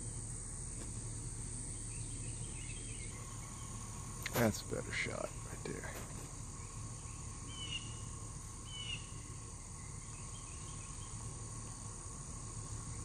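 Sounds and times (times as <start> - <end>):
insects trilling: 0.0 - 13.0
bird chirps: 1.6 - 4.2, 6.4 - 11.7.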